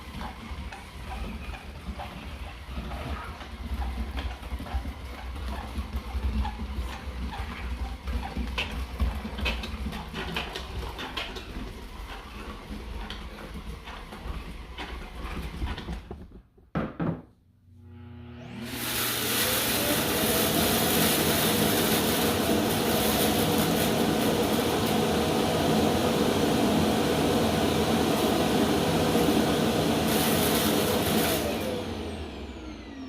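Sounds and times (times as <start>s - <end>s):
motor starting up: 17.8s - 24.9s
robot vacuum motor hum: 17.8s - 33.0s.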